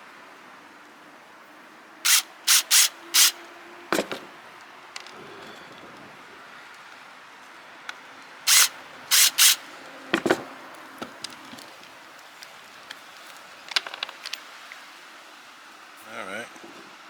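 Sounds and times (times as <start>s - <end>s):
short loud hissing bursts: 2.1s - 3.4s, 8.5s - 9.7s.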